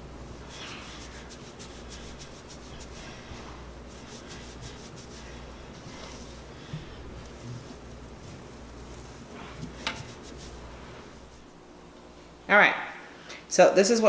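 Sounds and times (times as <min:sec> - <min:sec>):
fingertips scratching through hair: 0:00.3 - 0:03.2, 0:03.8 - 0:11.6.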